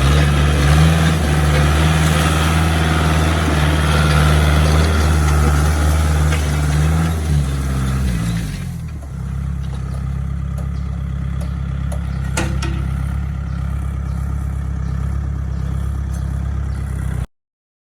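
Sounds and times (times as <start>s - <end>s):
metallic clanks: 0.0s - 13.8s
tractor engine running: 0.0s - 17.3s.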